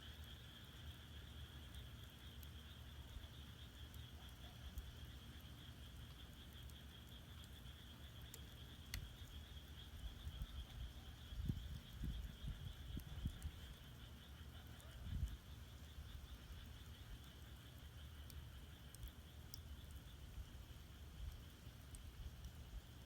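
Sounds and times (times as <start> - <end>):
frogs chorus: 0.0 - 23.0
firewood crackling: 4.7 - 23.0.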